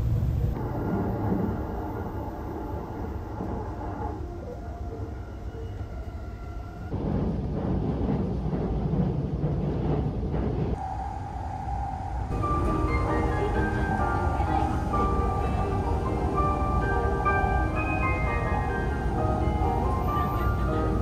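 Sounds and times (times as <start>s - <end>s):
train wheels rumbling on rail: 0.0s - 21.0s
faint steady whine: 10.8s - 21.0s.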